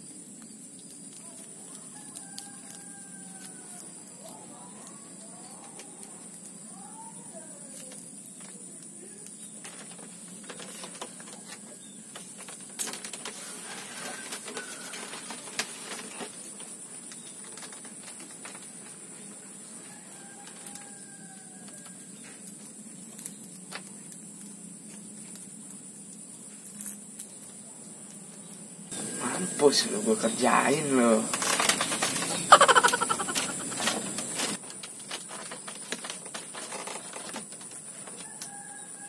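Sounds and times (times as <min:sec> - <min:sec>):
steady high-pitched whine: 0:28.7 - 0:32.5
birds calling: 0:28.9 - 0:34.6
handling clicks and rustling: 0:31.2 - 0:38.6.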